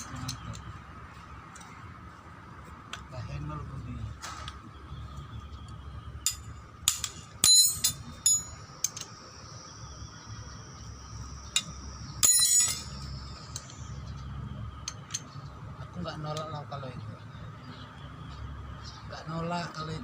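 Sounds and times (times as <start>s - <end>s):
metal tools knocking and clinking: 0.0s - 0.8s, 6.2s - 9.2s, 11.5s - 13.9s, 14.8s - 15.5s
ringing metallic clinks: 6.2s - 9.2s, 11.5s - 14.0s.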